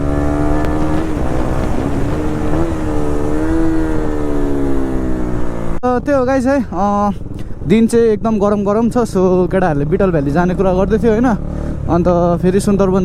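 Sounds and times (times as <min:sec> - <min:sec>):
motorcycle engine running: 0:00.0 - 0:06.0.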